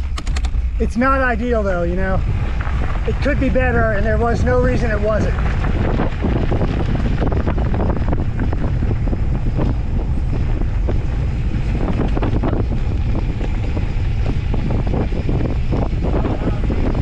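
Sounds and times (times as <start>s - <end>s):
short clicks and rattles: 0.0s - 0.8s
steady low rumble: 0.0s - 17.0s
wind buffeting microphone: 0.0s - 17.0s.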